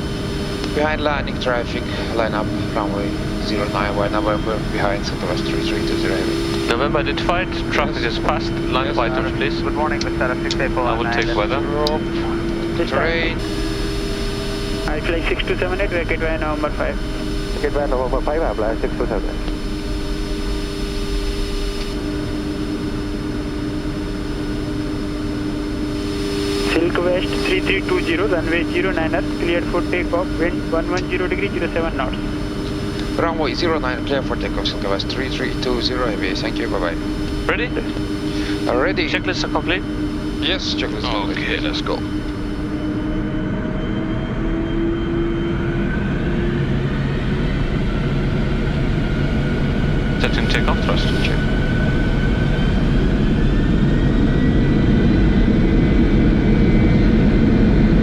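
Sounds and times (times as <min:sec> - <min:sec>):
two-note hum: 0:00.0 - 0:45.6
jet engines idling: 0:00.0 - 0:58.0.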